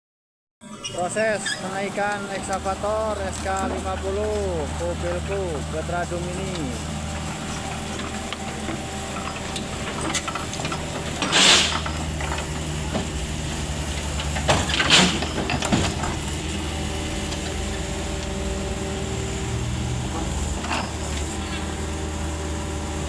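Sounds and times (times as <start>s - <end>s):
excavator diesel engine running: 1.0s - 23.0s
loud hissing bursts: 11.2s - 12.2s.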